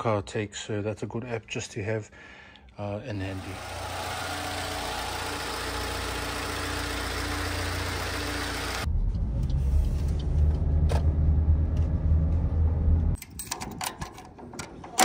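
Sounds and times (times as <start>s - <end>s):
car engine idling: 3.2s - 8.9s
car driving rumble from inside: 8.8s - 13.2s.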